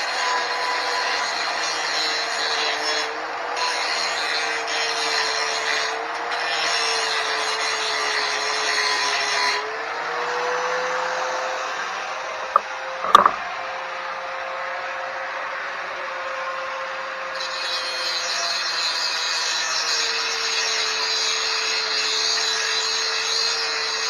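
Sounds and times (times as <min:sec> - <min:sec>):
sharp metallic knocks: 0:13.0 - 0:13.4.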